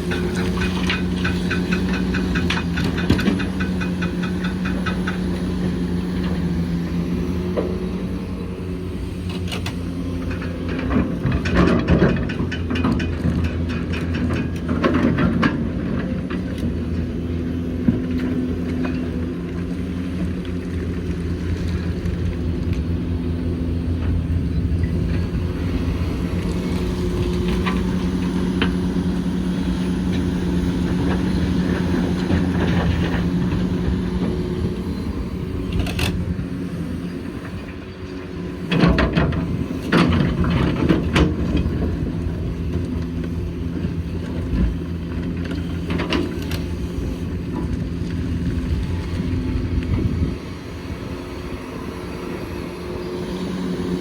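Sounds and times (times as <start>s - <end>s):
clatter and knocking: 0.0s - 5.6s
excavator diesel engine running: 0.0s - 54.0s.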